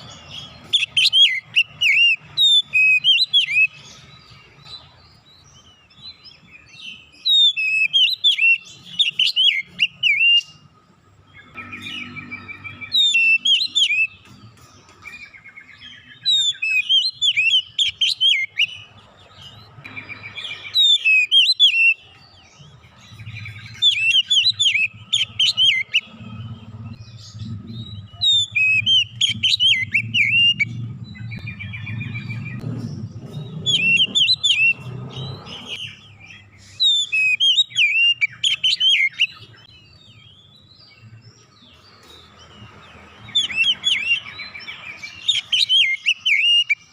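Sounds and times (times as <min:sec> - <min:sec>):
bird singing whistled phrases: 0:00.0 - 0:03.8, 0:06.1 - 0:10.7, 0:11.5 - 0:14.3, 0:15.2 - 0:18.9, 0:19.9 - 0:22.2, 0:23.2 - 0:26.1, 0:27.3 - 0:32.6, 0:33.5 - 0:40.7, 0:43.2 - 0:46.9.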